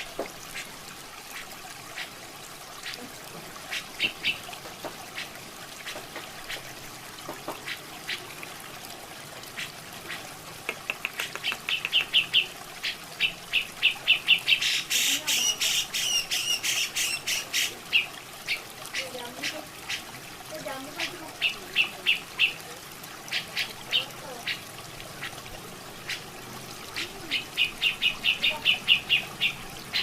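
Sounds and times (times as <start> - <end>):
water trickling: 0.0 - 30.0
bulbul calling: 3.7 - 4.4, 9.6 - 20.1, 26.9 - 30.0.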